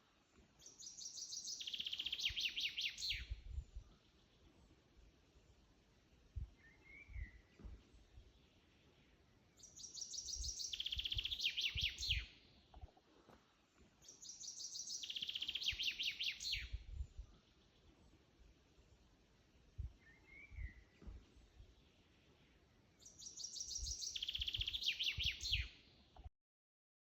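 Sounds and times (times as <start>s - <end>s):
songbird trilling: 0.7s - 3.2s, 9.6s - 12.3s, 14.0s - 16.7s, 23.0s - 25.7s
soft low thumps: 6.3s - 8.4s.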